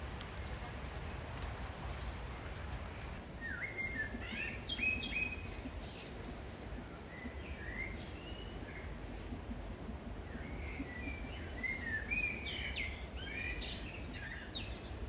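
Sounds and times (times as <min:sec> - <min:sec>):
birds chirping: 0:00.0 - 0:03.2
low background noise: 0:00.0 - 0:15.0.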